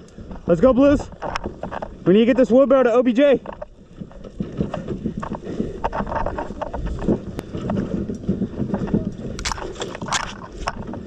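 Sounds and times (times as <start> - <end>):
wheelbarrow rattling over rough ground: 0.0 - 11.0
footsteps: 3.2 - 11.0.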